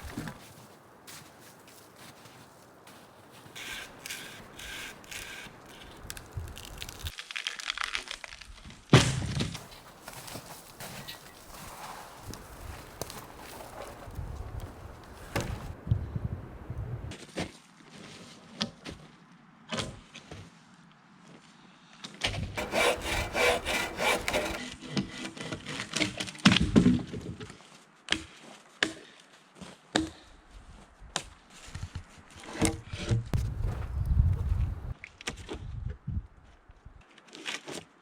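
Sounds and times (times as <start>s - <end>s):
sawing-like scraping: 2.9s - 6.1s, 22.6s - 26.1s
wood knocking on wood: 22.6s - 24.6s.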